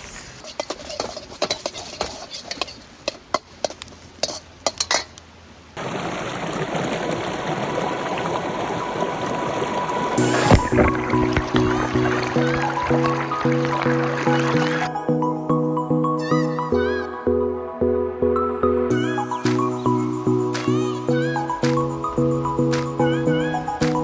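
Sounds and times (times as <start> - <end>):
metal spatula scraping a wok: 0.0 - 5.2
steady hiss: 0.0 - 5.9, 10.0 - 12.8, 18.9 - 24.0.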